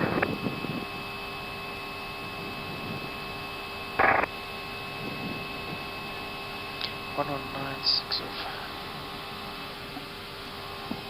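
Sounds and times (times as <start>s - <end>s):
cockpit electrical hum: 0.0s - 11.0s
fixed tones: 4.0s - 4.3s.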